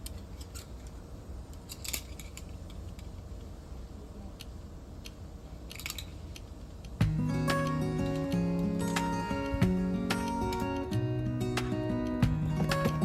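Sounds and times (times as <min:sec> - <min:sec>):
small objects clicking and scraping: 0:00.0 - 0:03.5, 0:04.4 - 0:06.9
steady low rumble: 0:10.9 - 0:13.0.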